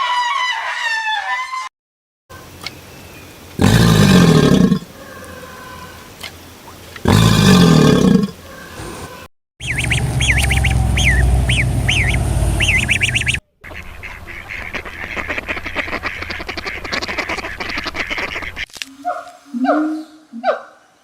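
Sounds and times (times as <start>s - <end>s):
low animal roar: 3.6s - 6.0s, 7.0s - 9.3s
high animal calls: 7.0s - 13.4s
waterfowl honking: 8.5s - 19.2s.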